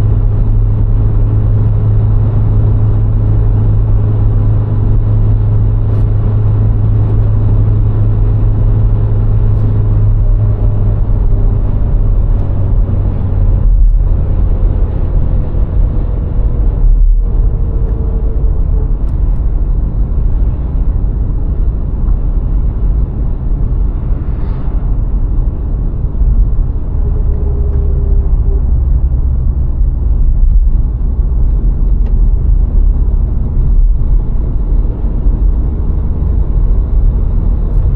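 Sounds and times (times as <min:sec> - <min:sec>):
car engine hum while driving: 0:00.0 - 0:37.9.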